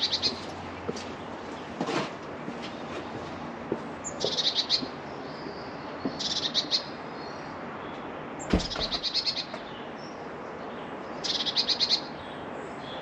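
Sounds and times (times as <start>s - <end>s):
small bird calling: 0.0s - 0.6s, 4.0s - 13.0s.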